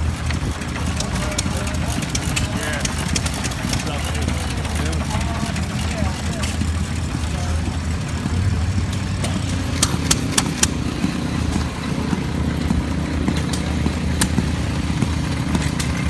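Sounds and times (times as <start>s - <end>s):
engine rumbling: 0.0s - 16.0s
sharp clicks or knocks: 9.2s - 11.7s.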